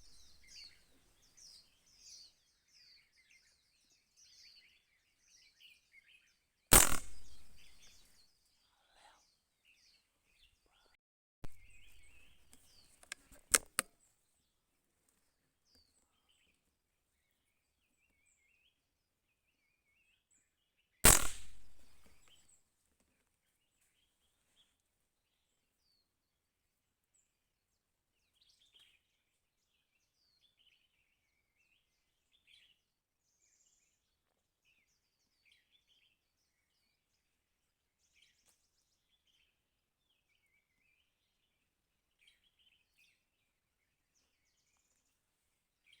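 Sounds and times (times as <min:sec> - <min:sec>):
small birds chirping: 0:00.0 - 0:22.5, 0:27.1 - 0:46.0
loud gunshot: 0:06.7 - 0:07.8, 0:21.0 - 0:22.2
sharp clicks: 0:06.7 - 0:07.9, 0:11.4 - 0:13.9, 0:21.0 - 0:22.3.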